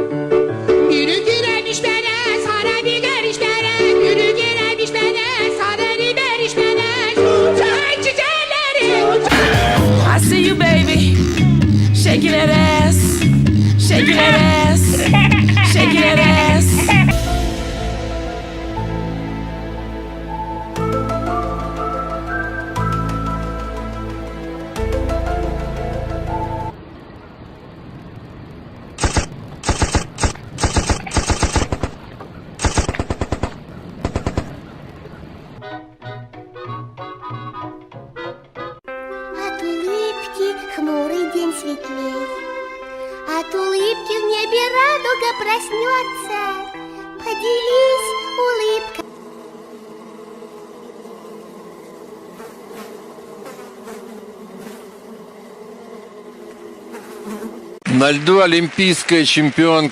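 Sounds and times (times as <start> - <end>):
music with pitched notes: 9.3 - 26.7
insect-like buzzing drone: 9.6 - 26.8, 28.1 - 35.2, 43.9 - 57.8
rapid automatic gunfire: 29.0 - 34.6.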